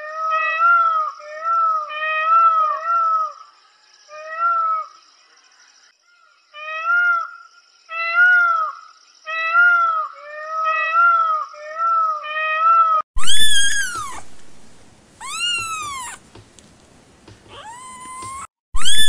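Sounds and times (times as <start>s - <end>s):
cats meowing: 11.9s - 14.3s, 15.2s - 16.2s, 17.5s - 19.0s
peacock honking calls: 15.2s - 16.3s.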